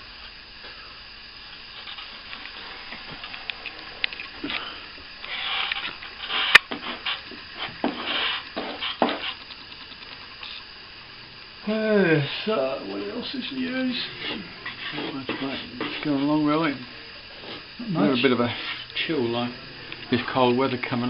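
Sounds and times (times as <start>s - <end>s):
hand tool scraping plaster: 7.8s - 9.4s.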